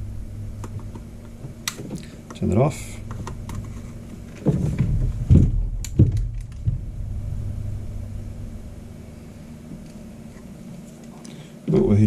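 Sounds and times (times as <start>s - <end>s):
low rumble: 0.0s - 1.2s, 2.7s - 10.4s
dull low thumps: 4.5s - 9.8s.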